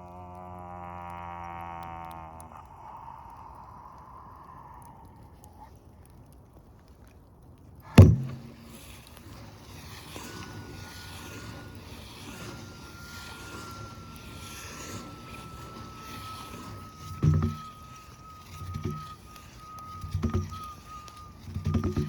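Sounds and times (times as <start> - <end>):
frame drum boom: 8.0 - 8.5
faint high ringing tone: 9.8 - 22.0.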